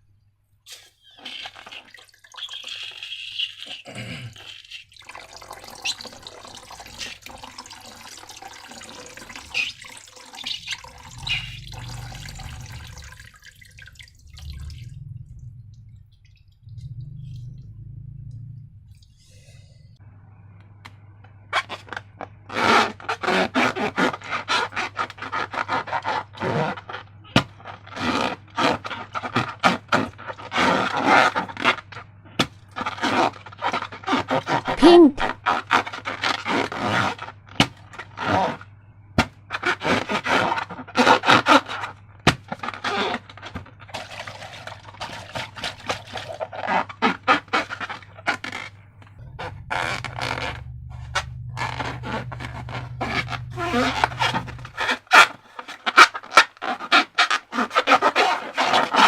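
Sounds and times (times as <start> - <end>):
slime crackling and scraping: 4.7 - 13.3, 39.5 - 59.0.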